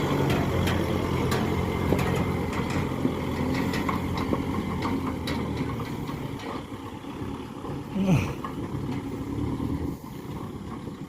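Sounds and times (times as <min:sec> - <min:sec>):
clicks and rattles: 0:00.0 - 0:06.8
tractor engine running: 0:00.0 - 0:11.0.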